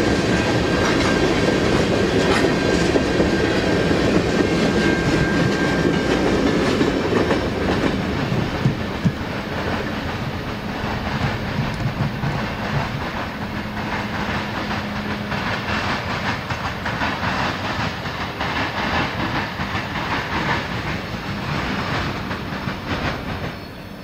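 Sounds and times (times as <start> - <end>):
freight train rolling on rails: 0.0 - 24.0
wheels clicking over rail joints: 0.3 - 24.0.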